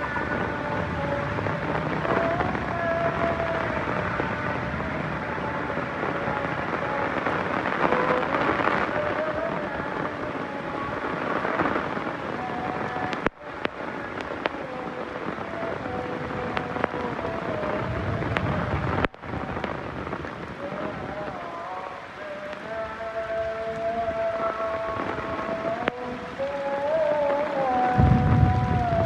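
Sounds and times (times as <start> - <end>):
low thunder rumble: 0.0 - 10.2, 28.0 - 29.0
heavy rain falling: 0.0 - 29.0.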